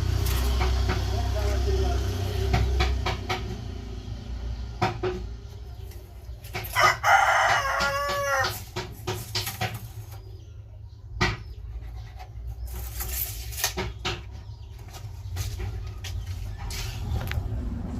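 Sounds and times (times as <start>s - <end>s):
sharp knocks and clicks: 0.1s - 1.2s, 2.4s - 3.8s, 4.7s - 6.8s, 7.4s - 10.3s, 11.1s - 12.4s, 13.5s - 16.2s
rooster crowing: 6.6s - 8.6s
steady low rumble: 16.3s - 17.9s.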